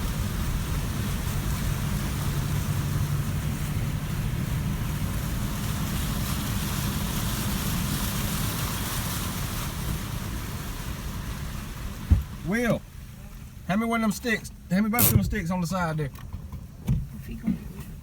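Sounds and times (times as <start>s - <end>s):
engine running steadily: 0.0s - 18.0s
water noise: 0.0s - 18.0s
wind: 0.0s - 18.0s.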